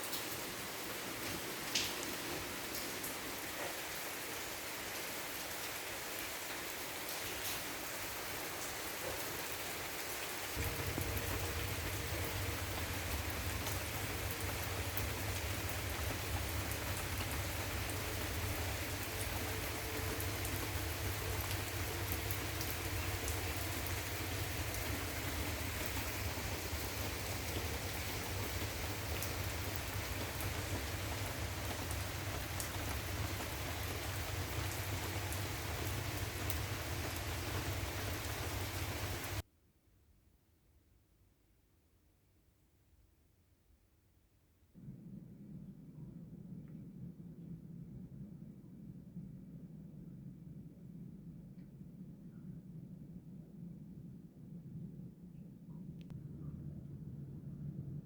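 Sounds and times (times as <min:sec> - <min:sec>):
rain falling: 0:00.0 - 0:39.4
steady low hum: 0:10.6 - 0:39.4, 0:44.8 - 0:58.0.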